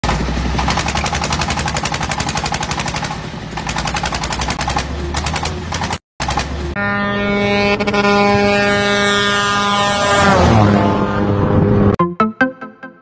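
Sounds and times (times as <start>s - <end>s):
truck diesel engine exhaust rattle: 0.0s - 6.8s.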